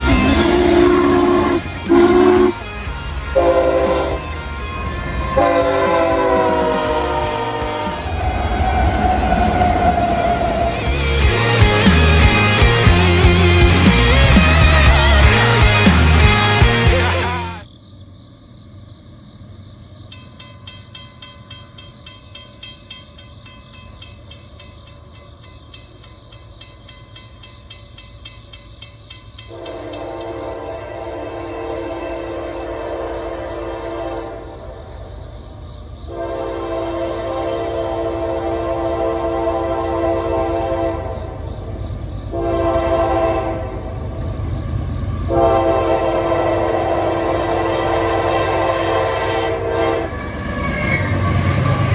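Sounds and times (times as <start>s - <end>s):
locomotive horn: 0.0s - 17.6s, 29.5s - 35.1s, 36.1s - 41.7s, 42.3s - 51.9s
train rumble: 0.0s - 17.7s, 19.4s - 51.9s.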